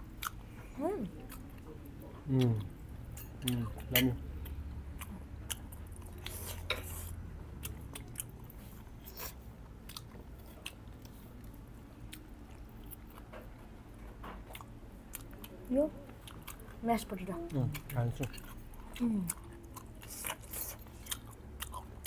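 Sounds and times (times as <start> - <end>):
low background hum: 0.0 - 22.0
chewing and biting: 3.4 - 13.6, 17.7 - 22.0.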